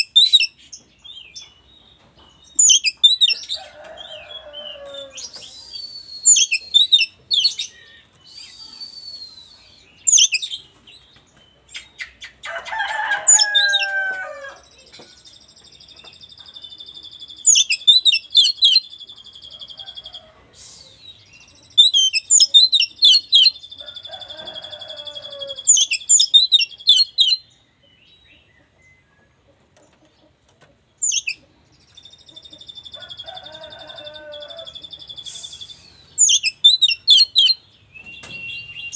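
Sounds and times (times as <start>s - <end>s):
bird singing whistled phrases: 5.1s - 10.6s, 34.8s - 38.9s.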